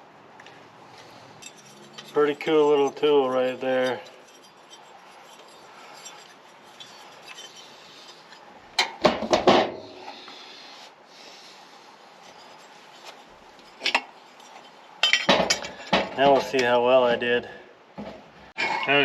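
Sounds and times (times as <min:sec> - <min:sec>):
low shop room noise: 0:00.0 - 0:19.0
metal tools knocking and clinking: 0:01.4 - 0:07.6, 0:13.8 - 0:16.7.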